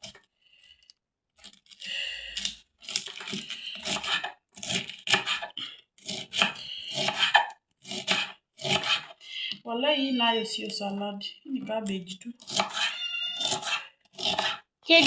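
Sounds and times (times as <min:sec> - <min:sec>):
knife chopping cabbage on board: 0:02.8 - 0:09.1, 0:12.4 - 0:14.6.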